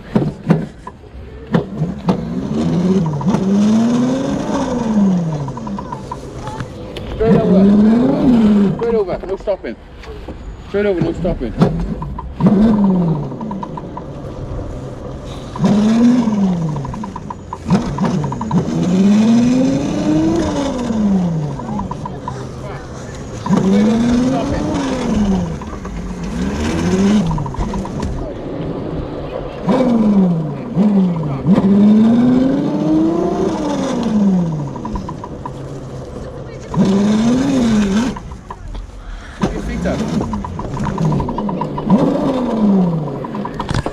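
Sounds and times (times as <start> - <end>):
electric motor and chain whining: 1.7 - 9.6, 10.3 - 43.9.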